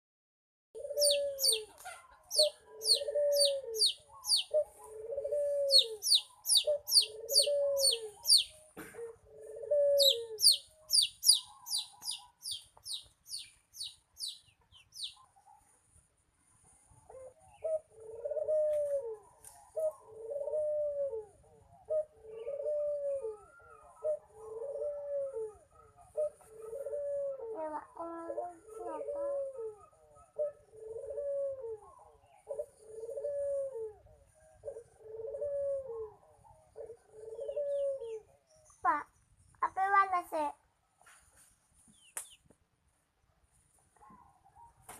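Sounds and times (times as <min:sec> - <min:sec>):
dove cooing: 0:00.8 - 0:14.4, 0:17.1 - 0:38.4
high descending bird chirps: 0:01.0 - 0:01.6, 0:02.4 - 0:04.5, 0:05.7 - 0:08.5, 0:10.0 - 0:14.4.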